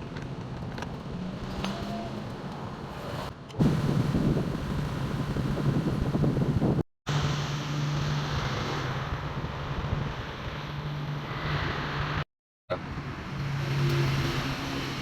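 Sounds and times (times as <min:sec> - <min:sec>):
rush of air from blower fan: 0:03.6 - 0:12.2.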